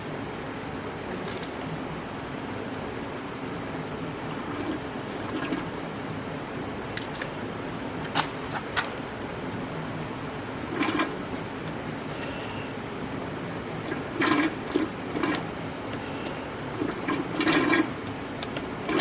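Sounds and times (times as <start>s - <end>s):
steady low hum: 0.0s - 19.0s
oil gurgling through a hose: 4.3s - 5.9s, 10.6s - 19.0s.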